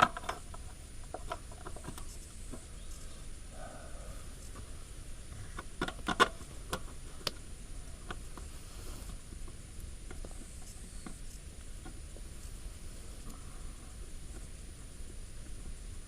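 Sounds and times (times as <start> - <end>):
small hard parts clicking: 5.3 - 7.4.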